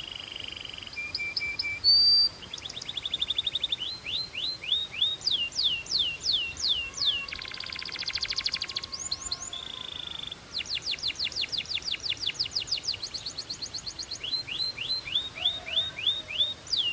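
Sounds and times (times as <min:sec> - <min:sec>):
canary singing: 0:01.0 - 0:13.1.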